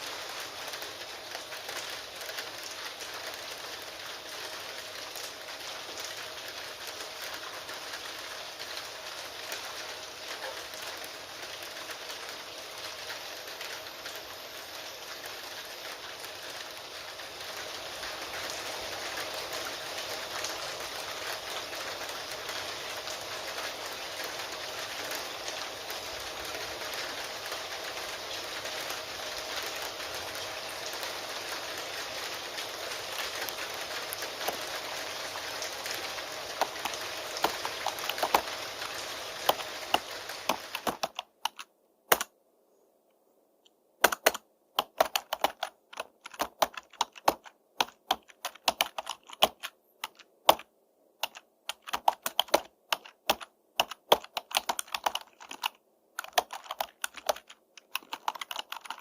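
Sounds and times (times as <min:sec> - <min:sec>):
rain hiss: 0:00.0 - 0:42.3
keyboard typing: 0:33.2 - 0:34.8, 0:35.9 - 0:42.3, 0:44.0 - 0:59.0.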